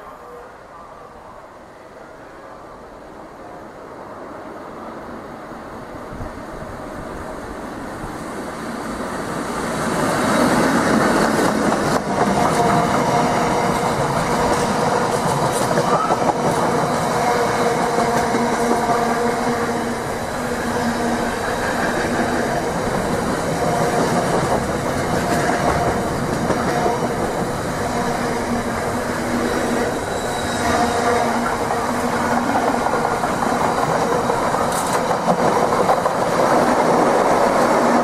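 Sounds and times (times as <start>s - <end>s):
train wheels clattering over rail joints: 10.8s - 17.1s, 21.2s - 37.7s.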